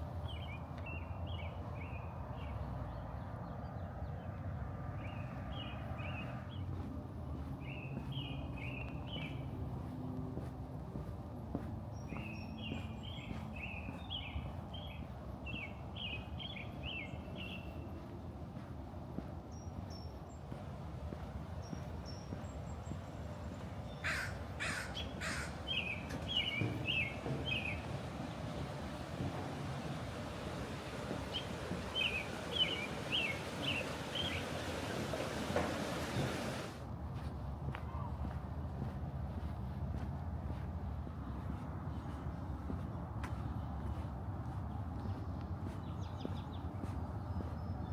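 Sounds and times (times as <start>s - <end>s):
outdoor background rumble: 0.0s - 47.9s
low outdoor rumble: 20.2s - 42.7s
small bird chirping: 23.9s - 36.7s.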